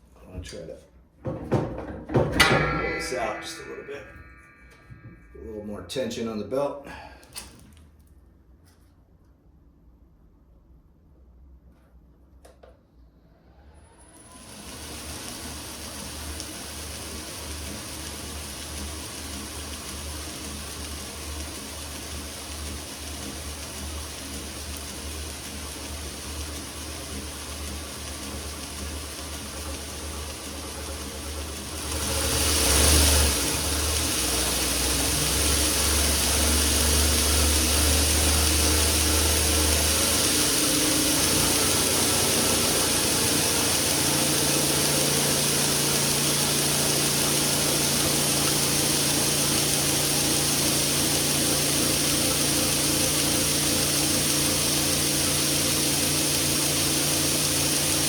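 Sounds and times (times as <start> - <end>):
electric motor pulsing hum: 14.3 - 58.0.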